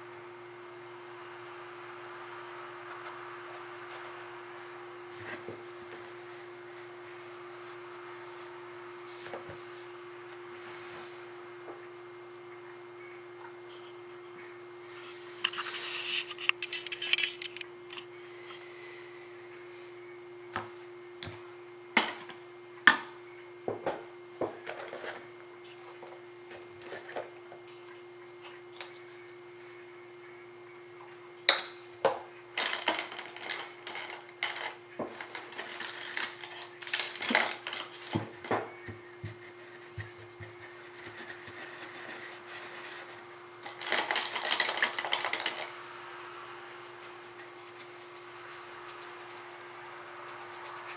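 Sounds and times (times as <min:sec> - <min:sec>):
steady low hum: 0:00.0 - 0:50.9
painting tools clinking and tapping: 0:16.3 - 0:18.0.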